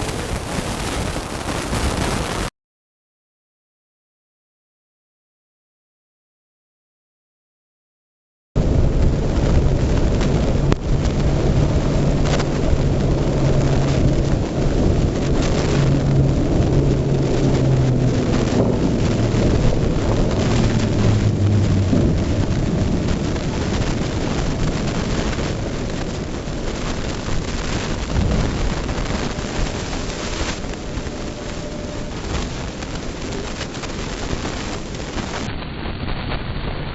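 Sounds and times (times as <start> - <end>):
rain: 0.0 - 2.5, 8.6 - 36.9
wind noise on microphone: 0.0 - 2.5, 8.6 - 36.9
vehicle engine low hum: 8.6 - 34.9.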